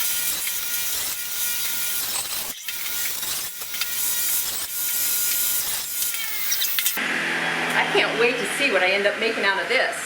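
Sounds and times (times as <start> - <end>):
power saw cutting root: 0.0 - 7.0.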